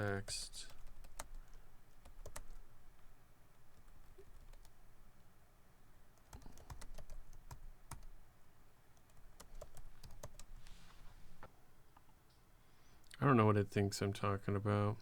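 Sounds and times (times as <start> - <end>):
typing on computer keyboard: 0.7 - 2.6, 3.8 - 4.8, 6.2 - 8.1, 9.0 - 10.5.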